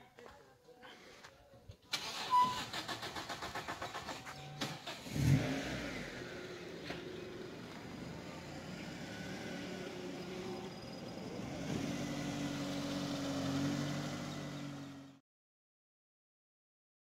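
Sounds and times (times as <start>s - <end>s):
car engine running: 3.7s - 15.2s.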